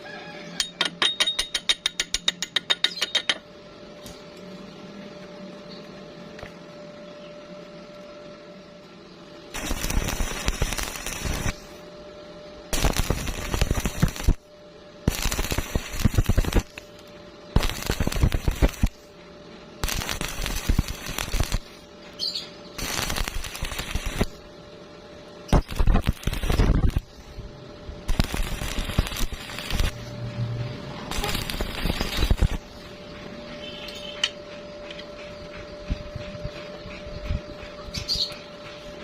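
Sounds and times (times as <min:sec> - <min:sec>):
faint steady hum: 0:00.0 - 0:39.0
welding arc crackling: 0:09.5 - 0:11.8, 0:12.7 - 0:19.1, 0:19.8 - 0:24.5, 0:25.5 - 0:27.4, 0:28.0 - 0:32.9.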